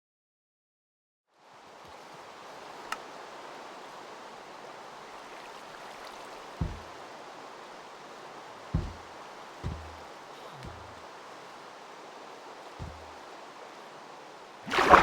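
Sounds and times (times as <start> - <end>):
floodwater rushing: 1.4 - 15.0
low thump: 6.6 - 7.0, 8.8 - 10.0, 12.8 - 13.2.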